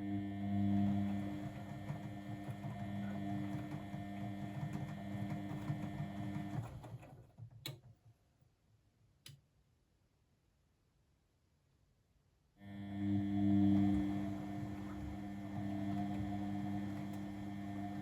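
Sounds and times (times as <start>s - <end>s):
washing machine humming: 0.0s - 7.6s, 12.8s - 18.0s.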